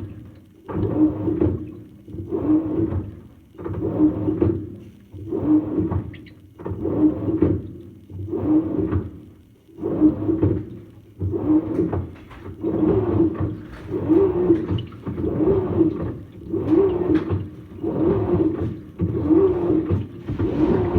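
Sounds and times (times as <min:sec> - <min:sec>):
washing machine motor hum: 0:09.8 - 0:20.9
water sloshing: 0:17.4 - 0:20.9.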